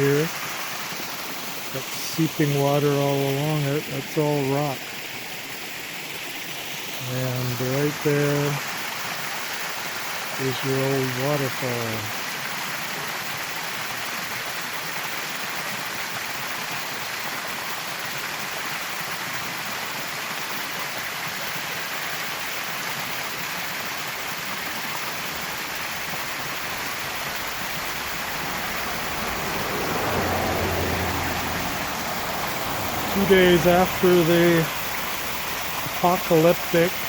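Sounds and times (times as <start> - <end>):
water rushing and splashing: 0.0 - 37.0
low rumble: 26.6 - 34.0.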